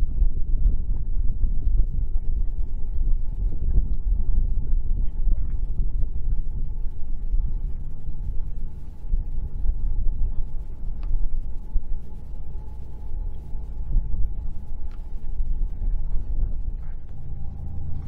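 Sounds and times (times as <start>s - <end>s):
faint steady tone: 0.0s - 18.0s
wind buffeting microphone: 0.0s - 18.0s
distant diesel locomotives rumbling: 17.0s - 18.0s.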